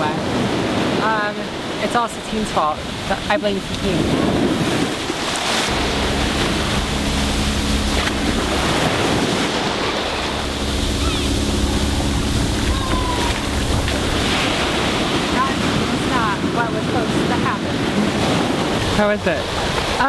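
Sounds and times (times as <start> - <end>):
ocean surf washing on beach: 0.0 - 20.0
wind buffeting microphone: 0.0 - 20.0
steady low hum: 5.6 - 20.0.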